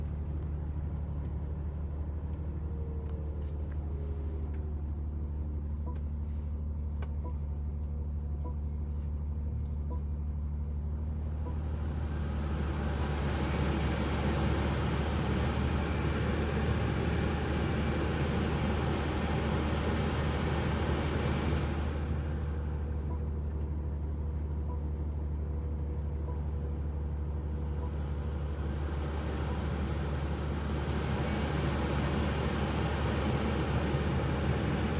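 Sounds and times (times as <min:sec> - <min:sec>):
low car hum: 0:09.7 - 0:34.9
car blower fan rushing air: 0:11.6 - 0:23.1, 0:27.7 - 0:34.9.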